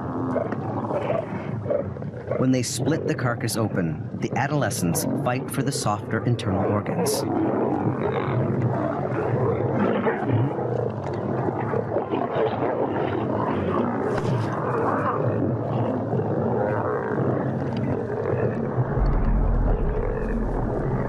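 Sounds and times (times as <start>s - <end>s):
lions snarling and growling: 0.0s - 2.5s, 7.2s - 21.0s.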